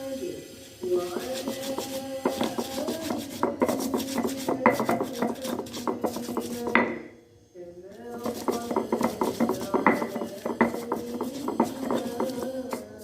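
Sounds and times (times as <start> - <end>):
dishes and utensils clinking: 8.5 - 12.9.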